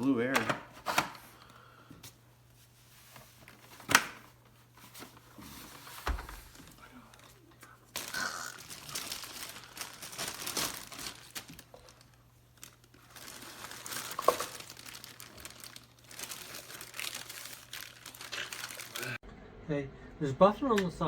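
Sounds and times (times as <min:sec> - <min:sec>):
plastic crinkling and rustling: 0:02.5 - 0:19.2.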